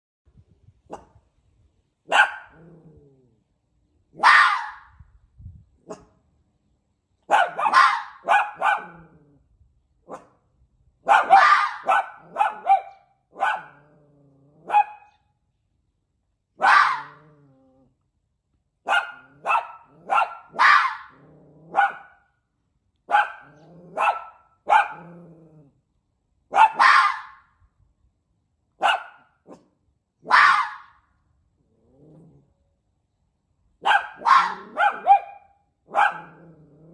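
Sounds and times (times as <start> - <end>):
fox barking: 2.0 - 2.8, 4.1 - 4.9, 5.8 - 6.2, 7.3 - 9.2, 10.0 - 10.4, 11.0 - 15.2, 16.6 - 17.4, 18.8 - 22.3, 23.0 - 25.2, 26.5 - 27.5, 28.8 - 31.0, 33.8 - 36.8.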